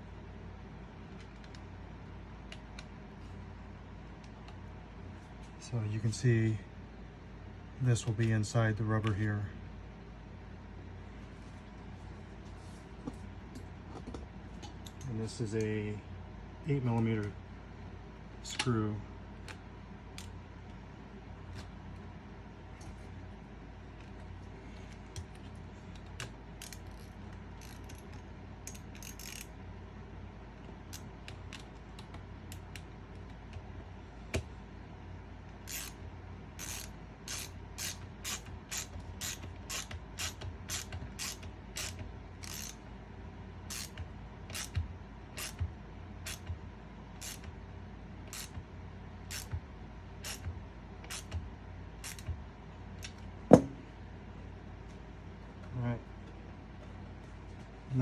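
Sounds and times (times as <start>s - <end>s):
ratchet tool clicking: 27.6s - 28.0s, 28.7s - 29.5s, 35.7s - 36.0s, 36.6s - 42.8s, 43.7s - 44.8s, 45.4s - 45.6s, 46.2s - 46.5s, 47.2s - 47.5s, 48.3s - 48.6s, 49.3s - 49.5s, 50.2s - 50.5s, 51.1s - 51.4s, 52.0s - 52.3s.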